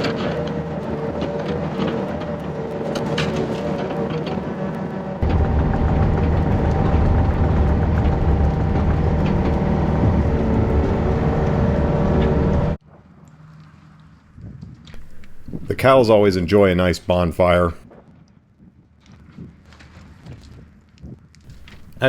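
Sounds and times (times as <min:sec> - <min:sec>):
diesel engine running under load: 0:05.2 - 0:12.8, 0:15.0 - 0:17.8, 0:21.5 - 0:22.0.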